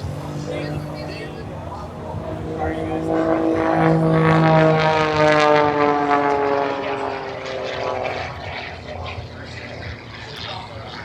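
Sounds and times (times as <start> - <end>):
propeller airplane flying past: 0.0 - 11.0.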